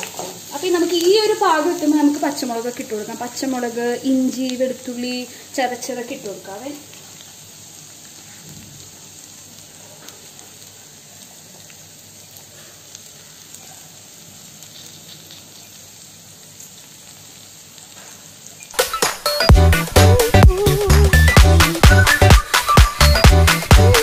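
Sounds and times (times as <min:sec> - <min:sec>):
onions sizzling in a pan: 0:00.0 - 0:24.0
loud dance music: 0:18.8 - 0:24.0.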